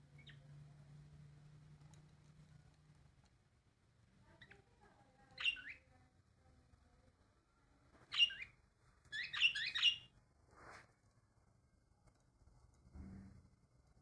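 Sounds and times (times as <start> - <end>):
bird chirping: 0.1 - 0.5, 5.4 - 5.9, 8.1 - 10.1.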